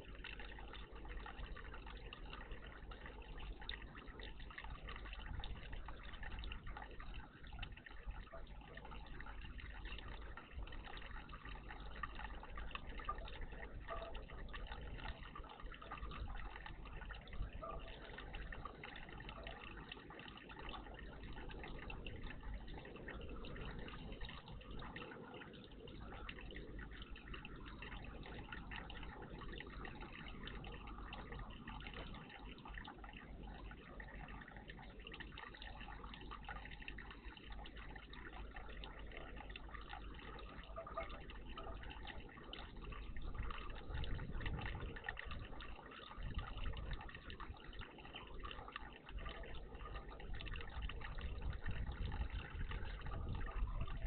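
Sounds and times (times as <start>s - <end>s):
water trickling and splashing: 0.0s - 54.0s.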